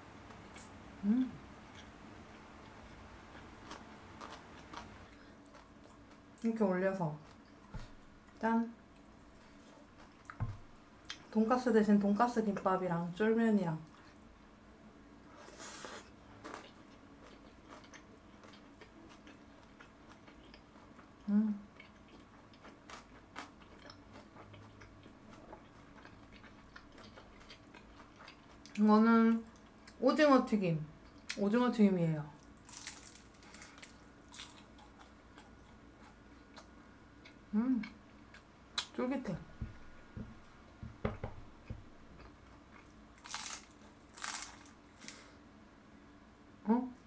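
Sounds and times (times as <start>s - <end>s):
faint chewing: 0.2s - 6.5s, 15.3s - 30.0s, 32.4s - 38.9s, 41.6s - 45.4s.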